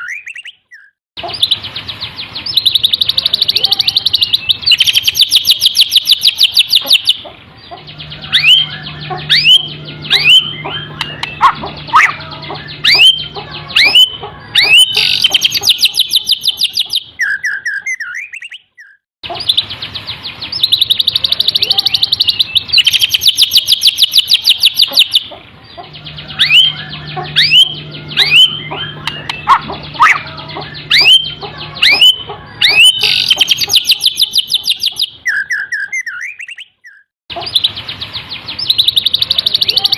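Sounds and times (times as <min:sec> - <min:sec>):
upward-sweeping whistles: 0:00.0 - 0:01.6, 0:08.1 - 0:19.6, 0:26.2 - 0:37.8
bird high trills: 0:00.0 - 0:39.9.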